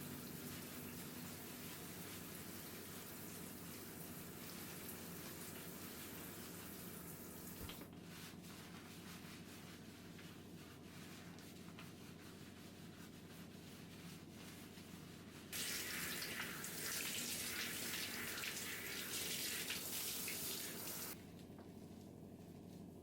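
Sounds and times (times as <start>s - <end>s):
water running from a tap: 0.0s - 7.9s, 15.6s - 21.2s.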